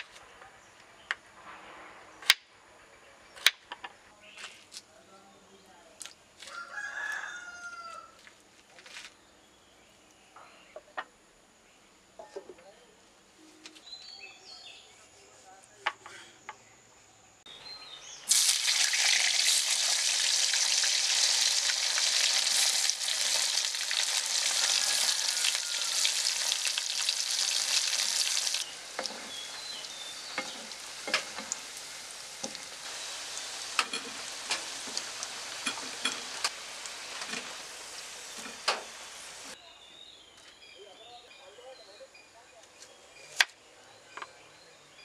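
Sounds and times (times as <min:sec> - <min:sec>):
potatoes sizzling in hot oil: 0:18.3 - 0:39.6.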